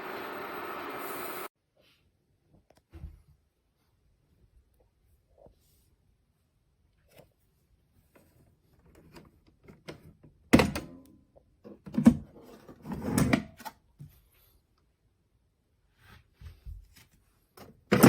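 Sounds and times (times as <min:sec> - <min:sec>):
knocks and clunks in a room: 0:02.3 - 0:05.8.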